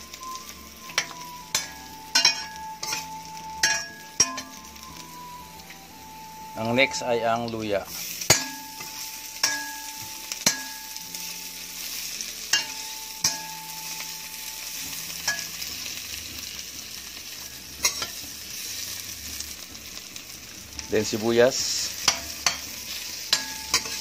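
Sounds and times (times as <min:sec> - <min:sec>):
garlic and ginger sizzling in oil: 0:00.0 - 0:24.0
metal spoon clinking against pan: 0:00.2 - 0:04.7, 0:08.2 - 0:11.1, 0:12.5 - 0:15.8, 0:17.8 - 0:18.3, 0:22.0 - 0:24.0.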